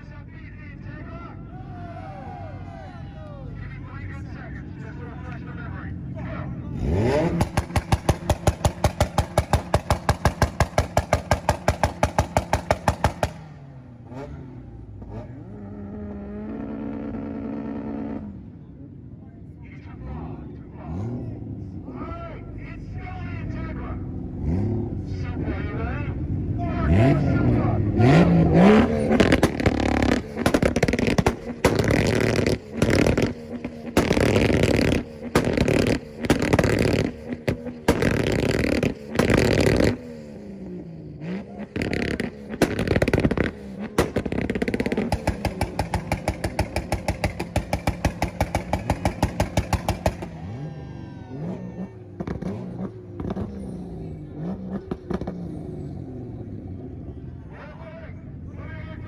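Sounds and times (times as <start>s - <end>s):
car engine idling and revving: 0.0s - 59.0s
car engine launch limiter pops: 6.8s - 14.5s, 28.0s - 50.7s, 51.3s - 55.8s.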